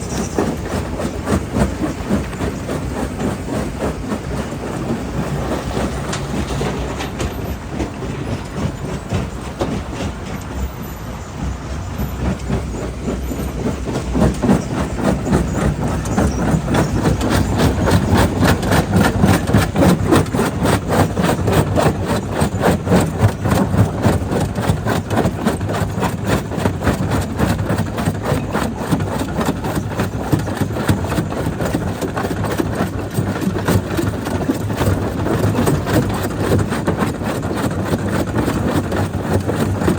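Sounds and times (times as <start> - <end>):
heavy machinery running: 0.0 - 39.9.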